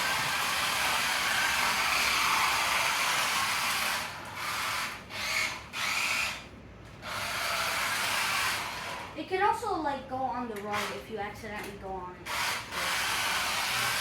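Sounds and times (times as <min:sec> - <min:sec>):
rc car motor whirring: 0:00.0 - 0:06.4, 0:12.3 - 0:14.0.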